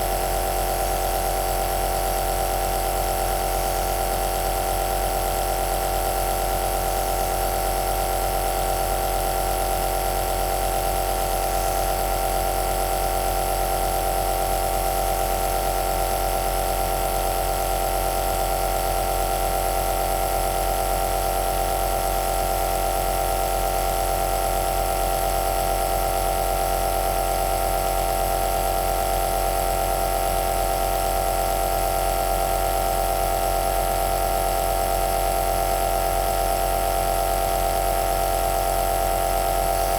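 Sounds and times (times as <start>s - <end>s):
compressor nebulizer humming: 38.6s - 39.9s.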